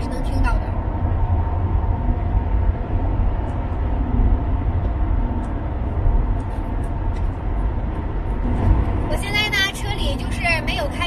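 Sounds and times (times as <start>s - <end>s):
car cabin drone at highway speed: 0.0s - 11.0s.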